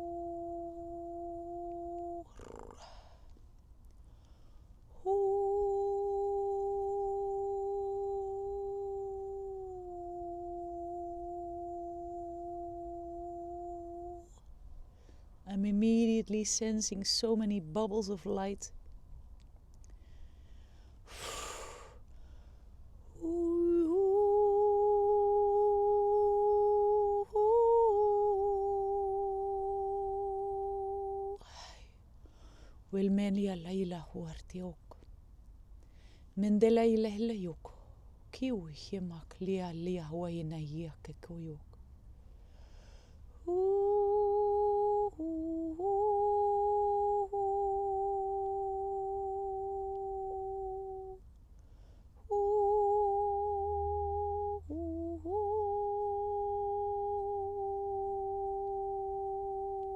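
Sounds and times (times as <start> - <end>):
woman humming held notes: 0.0 - 3.0, 5.0 - 14.4, 23.2 - 31.6, 43.5 - 51.2, 52.3 - 59.9.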